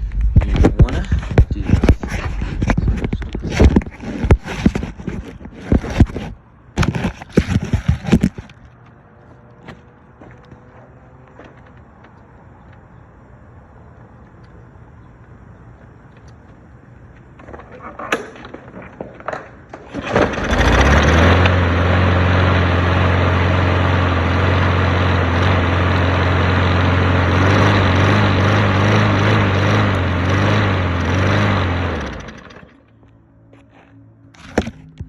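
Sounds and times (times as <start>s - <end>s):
lawn mower engine running: 19.2s - 33.0s.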